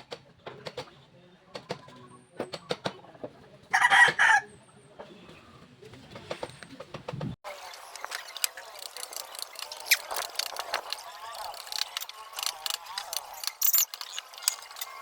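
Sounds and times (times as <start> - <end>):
rooster crowing: 3.7 - 4.5.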